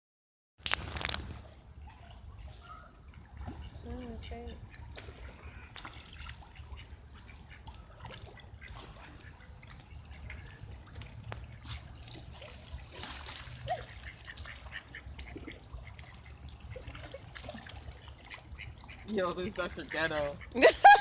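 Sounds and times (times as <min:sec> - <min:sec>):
water splashing and trickling: 0:00.6 - 0:21.0
ducks calling: 0:02.6 - 0:10.8, 0:17.9 - 0:21.0.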